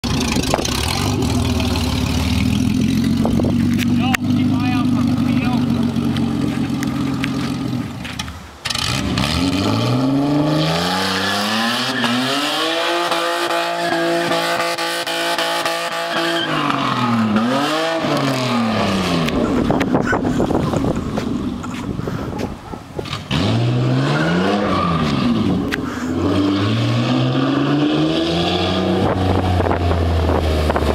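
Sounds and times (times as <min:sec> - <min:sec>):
car engine revving hard: 0:08.6 - 0:20.6, 0:23.0 - 0:30.9.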